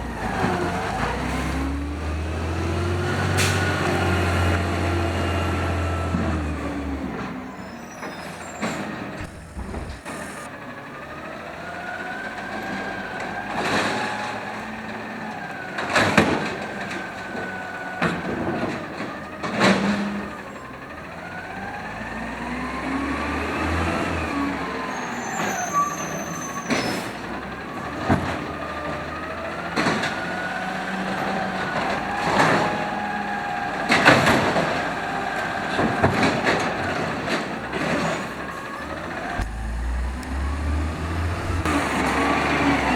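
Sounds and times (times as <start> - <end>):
garbage truck engine revving: 0.0 - 42.9
hydraulic whine: 3.4 - 10.5, 37.7 - 42.9
cart banging against hopper: 5.6 - 10.5, 25.4 - 42.9.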